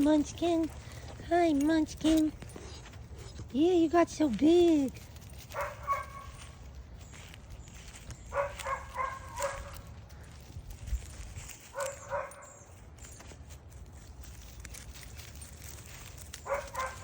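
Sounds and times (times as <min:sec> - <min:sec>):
puppies yapping: 0:05.4 - 0:07.2, 0:07.9 - 0:10.4, 0:11.7 - 0:13.4, 0:14.8 - 0:17.0.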